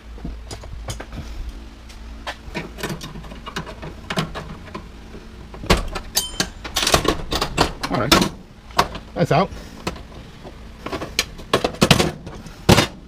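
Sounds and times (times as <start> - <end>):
metal parts knocking and scraping: 2.2 - 9.1, 9.8 - 13.0
metallic clatter and ring: 6.1 - 7.6.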